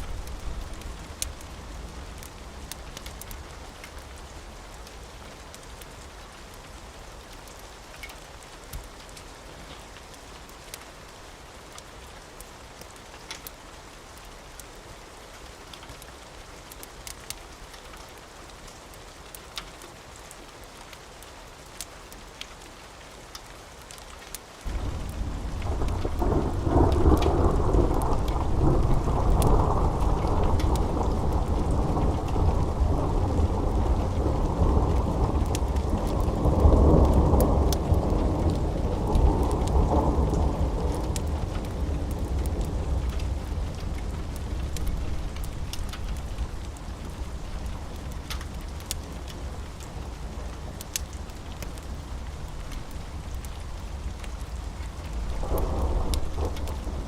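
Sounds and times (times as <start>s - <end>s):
sharp raindrop ticks: 0.0s - 57.0s
steady rain: 0.0s - 57.0s
loud thunder rumbling: 24.7s - 46.7s, 55.1s - 57.0s.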